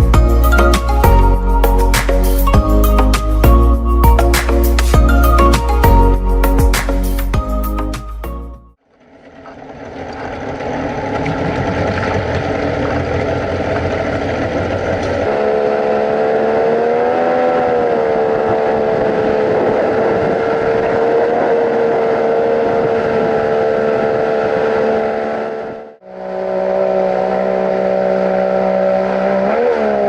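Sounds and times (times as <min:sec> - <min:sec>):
jet boat motor running: 0:09.0 - 0:16.3
water and wind noise: 0:09.0 - 0:30.0.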